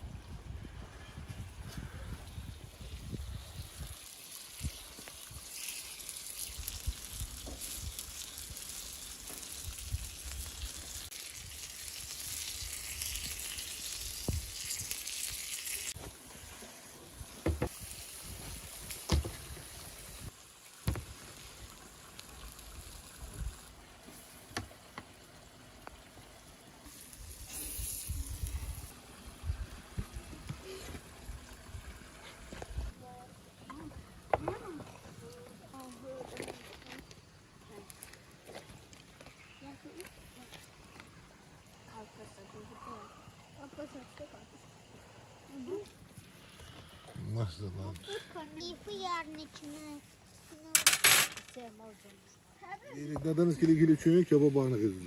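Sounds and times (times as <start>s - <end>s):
meat sizzling: 3.0s - 26.1s, 26.8s - 29.6s.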